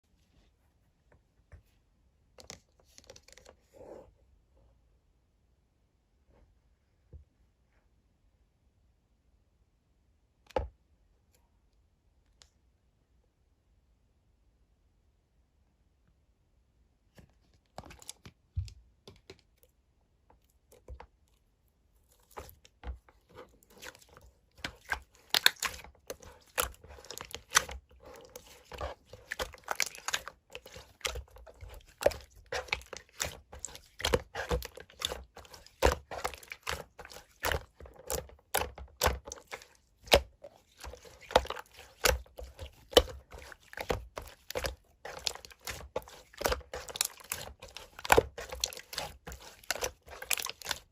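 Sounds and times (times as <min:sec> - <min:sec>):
slime squishing by hand: 0:17.6 - 0:19.6, 0:20.3 - 0:50.9.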